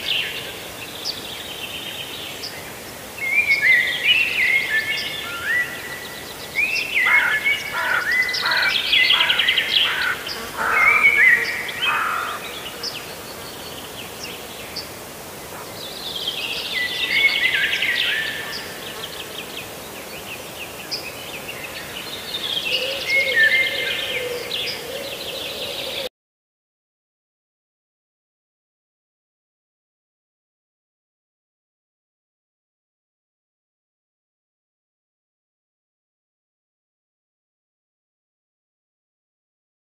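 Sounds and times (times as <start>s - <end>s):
birds calling: 6.6s - 14.9s.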